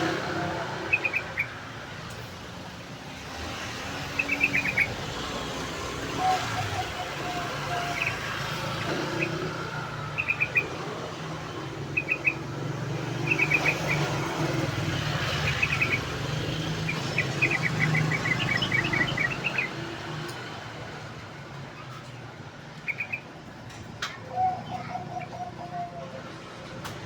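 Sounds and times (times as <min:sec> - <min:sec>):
bird chirping in bursts: 0:00.0 - 0:20.5, 0:22.7 - 0:26.2
low traffic rumble: 0:00.0 - 0:27.0.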